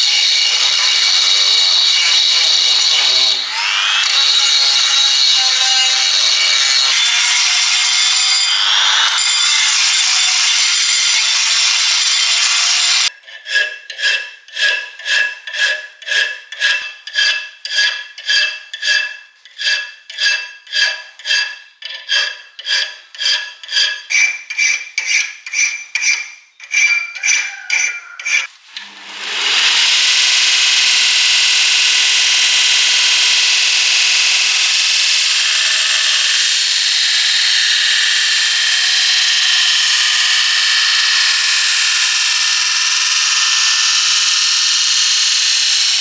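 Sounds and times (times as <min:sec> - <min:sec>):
file strokes on steel blade: 0:00.0 - 0:33.5
abrasive hiss on metal: 0:28.5 - 0:46.0.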